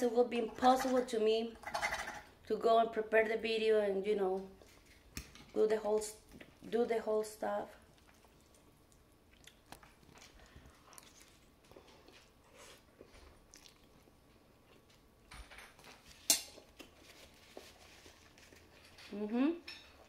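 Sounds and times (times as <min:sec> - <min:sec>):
chewing noodles with wet smacks: 0:07.8 - 0:15.0.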